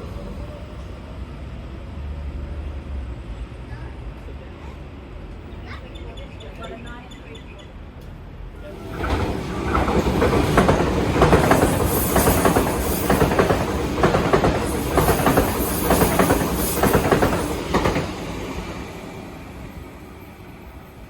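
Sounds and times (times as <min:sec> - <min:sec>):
electric train running past: 0:00.0 - 0:05.7, 0:08.4 - 0:21.0
wheels clattering over rail joints: 0:08.7 - 0:18.2.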